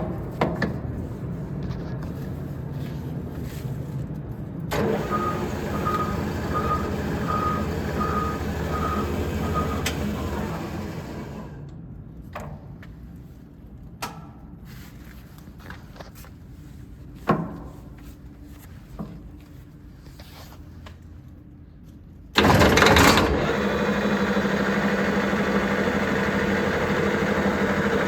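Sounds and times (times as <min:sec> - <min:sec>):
lathe motor humming: 0:04.8 - 0:11.6, 0:22.4 - 0:28.0.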